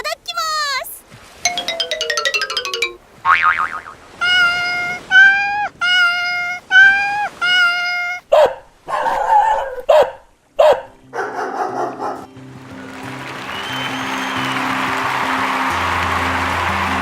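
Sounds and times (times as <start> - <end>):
sharp sounds with falling pitch: 1.5 - 4.0
dog yapping: 8.3 - 12.3.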